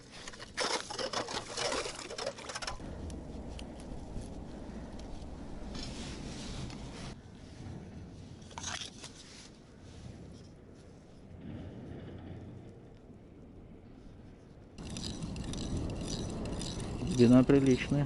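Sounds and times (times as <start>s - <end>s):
rustling and scraping handling noise: 0.0s - 4.4s, 5.0s - 11.2s
low rumble: 2.7s - 8.6s, 9.6s - 18.0s.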